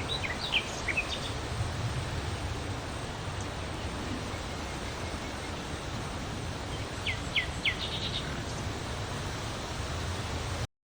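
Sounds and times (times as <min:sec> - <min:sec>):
small bird chirping: 0:00.0 - 0:01.4, 0:06.7 - 0:08.7
background rumble and hiss: 0:00.0 - 0:10.7.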